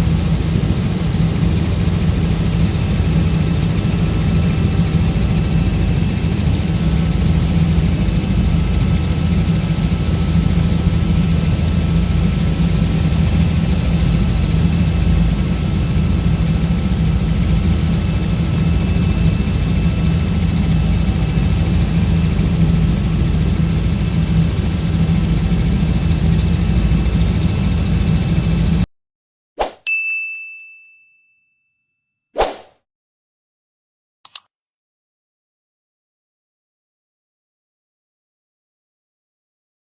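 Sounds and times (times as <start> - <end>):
faint high turbine whine: 0.0 - 28.8
helicopter engine and rotors drone: 0.0 - 28.9.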